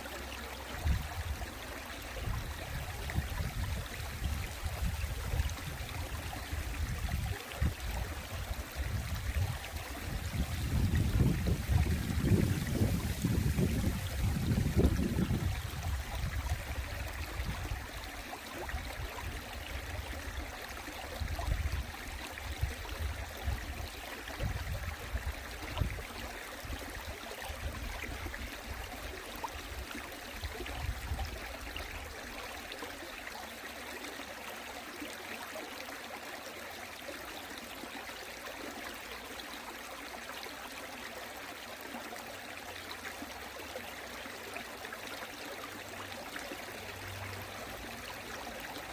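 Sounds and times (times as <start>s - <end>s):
stream water babbling: 0.0s - 48.9s
wind rumbling on microphone: 0.8s - 1.4s, 2.2s - 18.0s, 21.2s - 27.0s, 30.5s - 31.4s.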